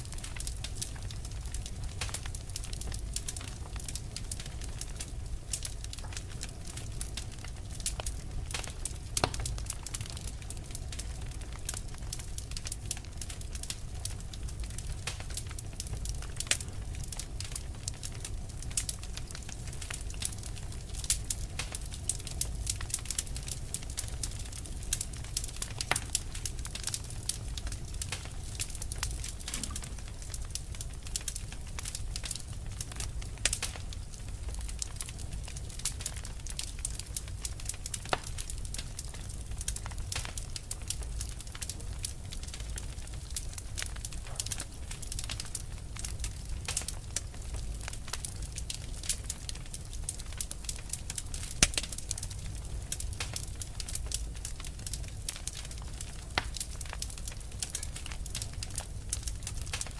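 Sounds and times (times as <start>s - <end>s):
wood fire crackling and popping: 0.0s - 59.9s
steady low rumble: 19.4s - 33.4s.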